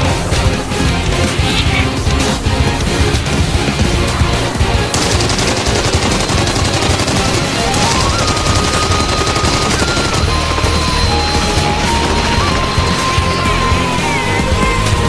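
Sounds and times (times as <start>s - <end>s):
aggressive action soundtrack music: 0.0s - 15.0s
rapid rattling gunfire: 4.9s - 12.8s.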